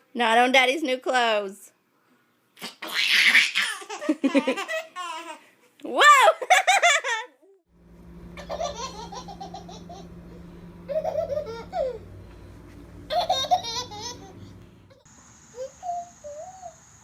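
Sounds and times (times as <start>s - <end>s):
young child laughing: 2.6s - 5.4s, 13.1s - 14.4s
steady low hum: 7.7s - 15.1s.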